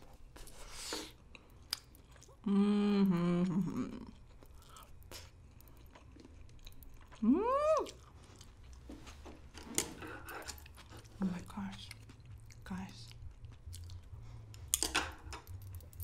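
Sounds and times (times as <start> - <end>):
person humming mmm: 2.4 - 4.1, 7.2 - 8.0
close chewing: 3.6 - 9.2, 10.0 - 16.0.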